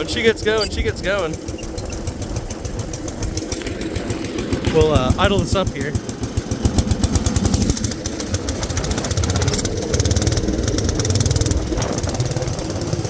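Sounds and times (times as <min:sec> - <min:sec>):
garden tractor engine running: 0:00.0 - 0:13.0.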